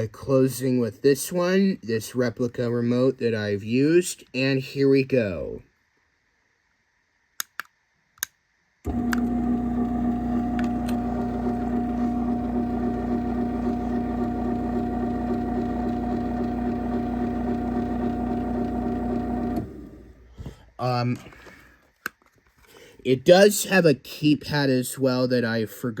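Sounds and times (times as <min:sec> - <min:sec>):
garage door opener clicks: 0:08.9 - 0:12.6
garage door opener motor humming: 0:08.9 - 0:20.3.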